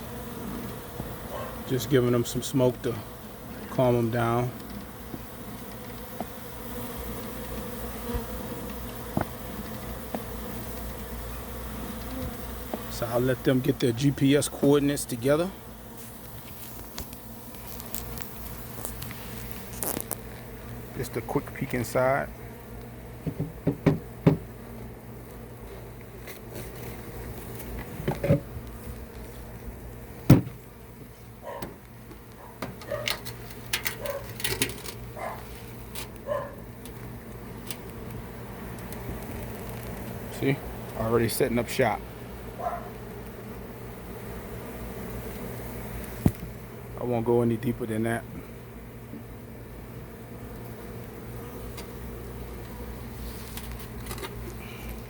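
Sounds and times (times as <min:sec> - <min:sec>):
bees buzzing: 0:00.0 - 0:55.0
knocks and clicks on hive: 0:04.5 - 0:12.9, 0:23.1 - 0:24.5, 0:27.6 - 0:29.2, 0:30.2 - 0:30.7, 0:31.5 - 0:41.0, 0:46.0 - 0:46.6.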